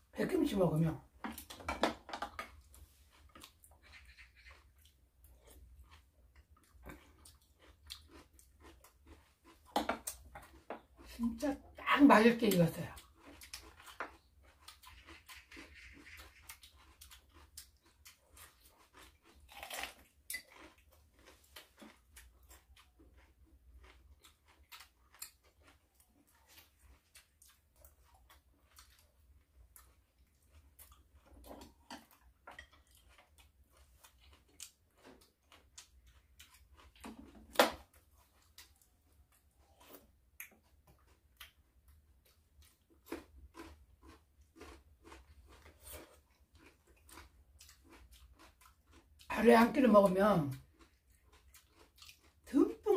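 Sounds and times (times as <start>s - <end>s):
people chewing crunchy vegetables: 1.0s - 52.9s.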